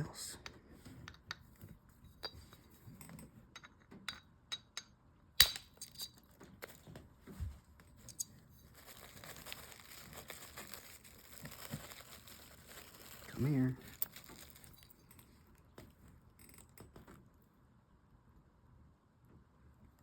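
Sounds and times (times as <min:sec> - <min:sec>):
packing material tearing and crinkling: 0:08.1 - 0:15.0.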